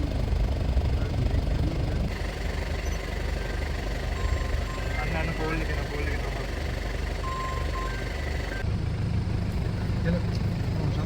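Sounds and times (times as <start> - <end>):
jeep engine low rumble: 0.0 - 11.0.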